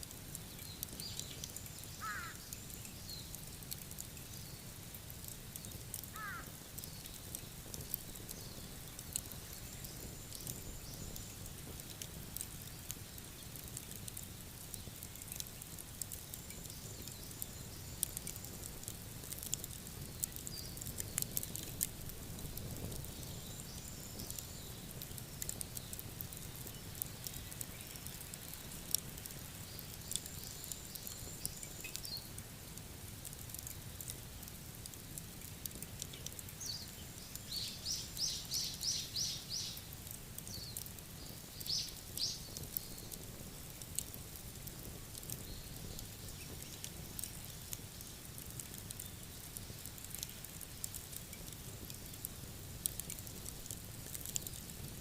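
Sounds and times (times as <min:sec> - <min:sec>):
wood fire crackling and popping: 0:00.0 - 0:55.0
bird chirping: 0:36.7 - 0:39.8, 0:40.6 - 0:43.0.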